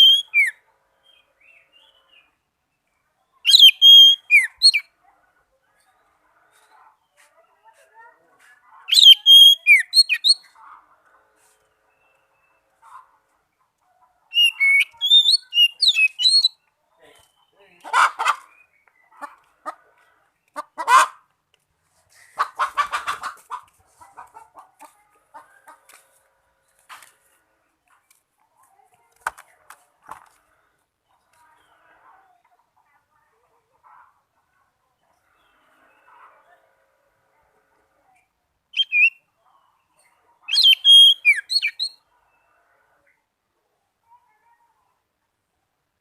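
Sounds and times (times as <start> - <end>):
loud harsh bird call: 0.0 - 1.2, 3.4 - 4.9, 8.9 - 10.6, 14.3 - 16.6, 40.5 - 42.0
bird singing: 0.0 - 4.9, 8.9 - 10.6, 14.3 - 17.8, 38.7 - 39.3, 39.9 - 42.4.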